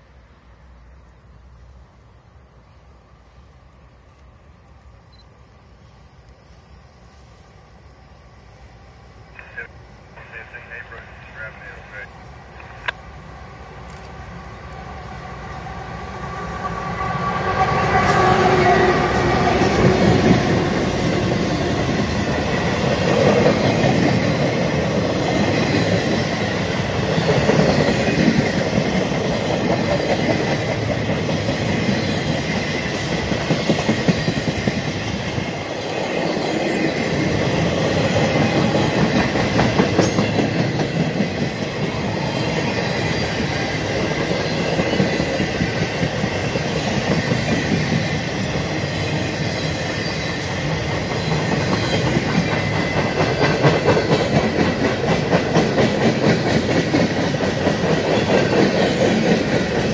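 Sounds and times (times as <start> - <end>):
freight train wheels clattering: 18.0 - 41.9, 42.6 - 59.9.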